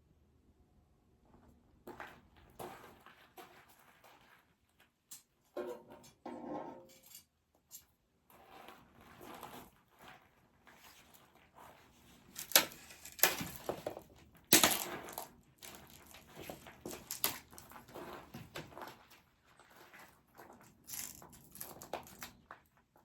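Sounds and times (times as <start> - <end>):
rustling: 8.7 - 22.6
dry wood cracking and snapping: 12.3 - 17.8.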